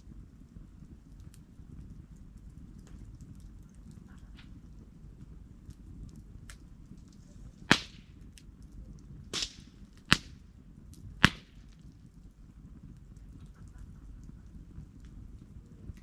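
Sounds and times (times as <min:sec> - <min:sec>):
campfire crackling: 0:00.0 - 0:16.0
low steady noise: 0:00.0 - 0:16.0
loud firewood pops: 0:06.5 - 0:08.5, 0:09.2 - 0:12.0.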